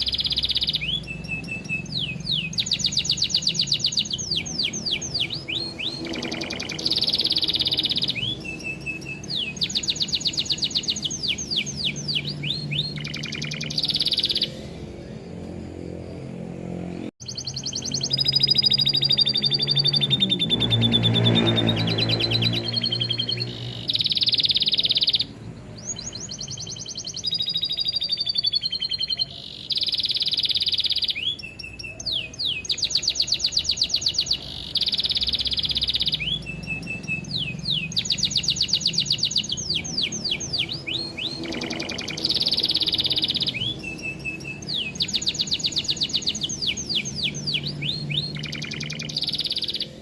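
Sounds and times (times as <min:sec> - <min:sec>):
canary singing trills and whistles: 0:00.0 - 0:16.4, 0:17.2 - 0:50.0.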